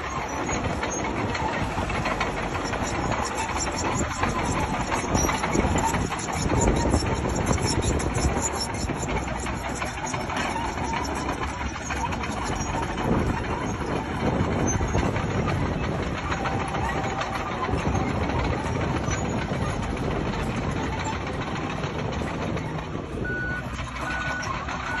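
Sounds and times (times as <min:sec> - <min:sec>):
bulldozer diesel engine running: 0:00.0 - 0:25.0
short beeps: 0:23.3 - 0:25.0.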